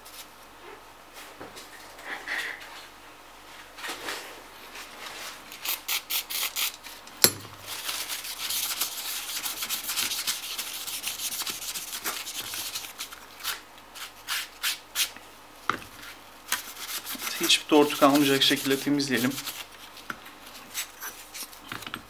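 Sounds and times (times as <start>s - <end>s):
sharp tap: 7.2s - 7.6s
rubbing strokes on heatsink: 16.0s - 21.5s.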